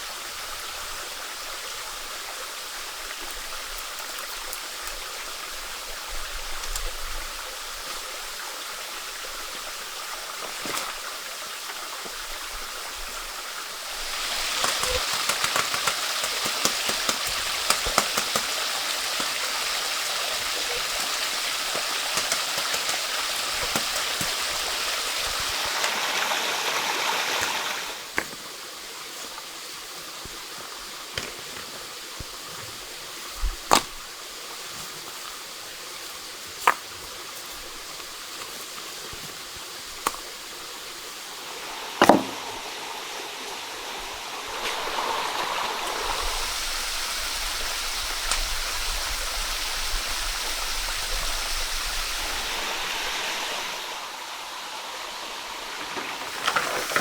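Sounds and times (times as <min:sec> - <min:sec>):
water running: 0:00.0 - 0:57.0
sharp knocks: 0:42.0 - 0:42.6.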